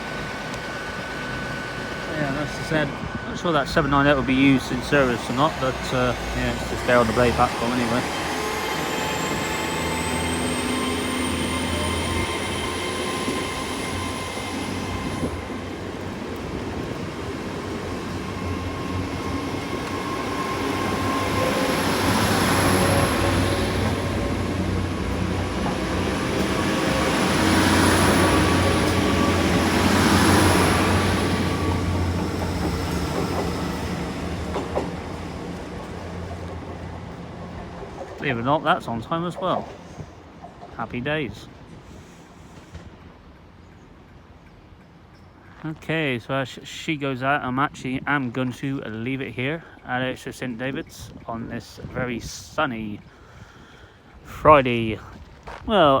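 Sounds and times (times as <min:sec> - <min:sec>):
train engine low drone: 0:00.0 - 0:46.5
wheels on rails: 0:00.1 - 0:40.8.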